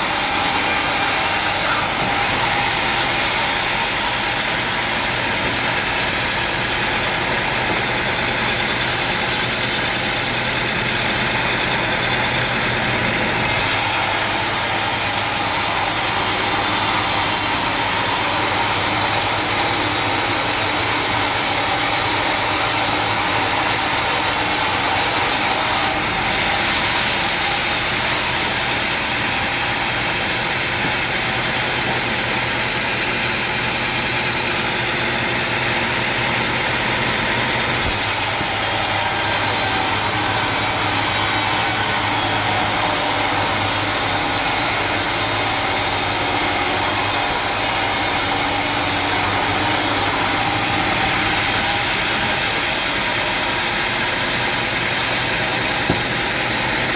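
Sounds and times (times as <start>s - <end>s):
sawmill machinery hum: 0.0s - 56.9s
strong hiss: 37.7s - 38.4s.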